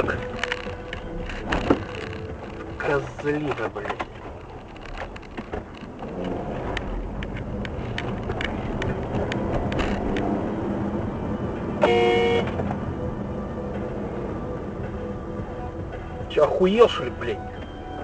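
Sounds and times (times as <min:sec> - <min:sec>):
traffic and engine noise: 0:00.0 - 0:18.0
car horn: 0:11.8 - 0:12.6.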